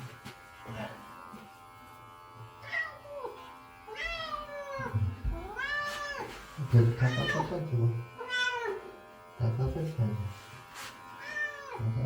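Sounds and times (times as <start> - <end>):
cat meowing: 2.6 - 6.3, 7.0 - 7.6, 8.2 - 8.9, 11.2 - 11.8.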